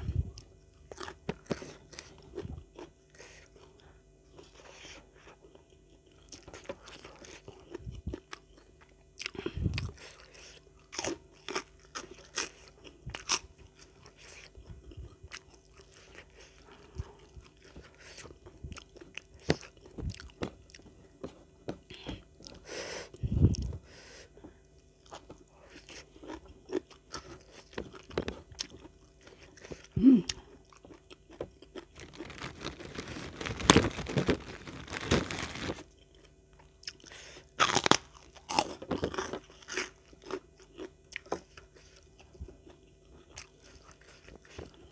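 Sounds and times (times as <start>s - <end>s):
crunching raw vegetables: 25.0s - 44.9s.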